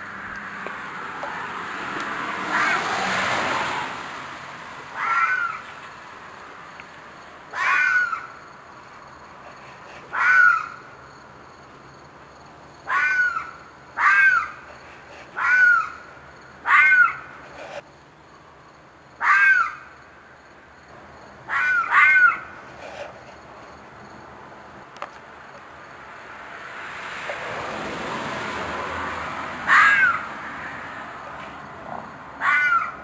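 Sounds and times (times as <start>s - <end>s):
animal screeching calls: 2.4s - 3.1s, 4.9s - 5.7s, 7.5s - 8.4s, 10.0s - 10.9s, 12.9s - 17.7s, 19.2s - 19.9s, 21.5s - 23.1s, 29.7s - 30.7s, 32.4s - 33.0s.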